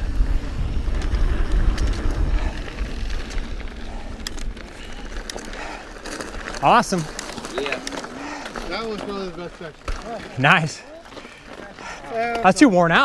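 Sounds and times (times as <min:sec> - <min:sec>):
wind buffeting microphone: 0:00.0 - 0:07.0
bike clicks and rattles: 0:00.0 - 0:13.0
bike rolling on dirt trail: 0:00.0 - 0:13.0.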